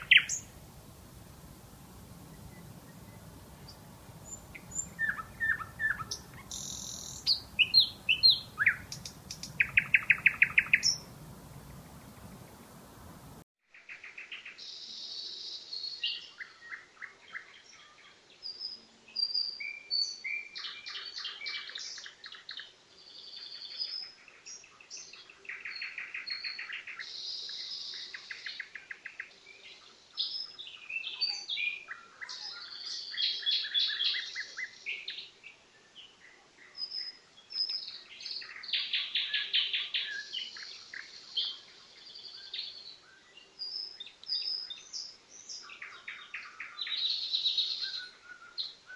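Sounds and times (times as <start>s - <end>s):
nightingale singing: 0.0s - 13.4s, 23.2s - 48.9s.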